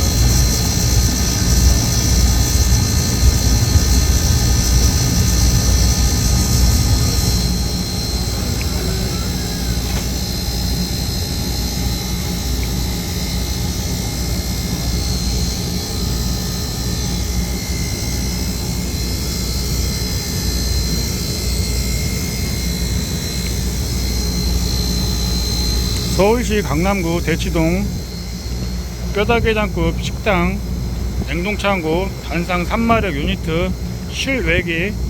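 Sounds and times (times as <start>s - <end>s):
condensing unit humming: 0.0s - 35.0s
thin high whine: 0.0s - 35.0s.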